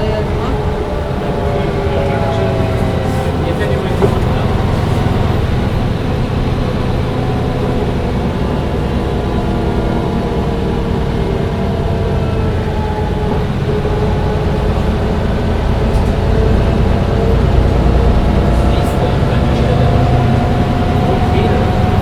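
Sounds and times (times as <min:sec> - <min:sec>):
bus diesel engine running: 0:00.0 - 0:22.0
humming drivetrain: 0:00.0 - 0:22.0.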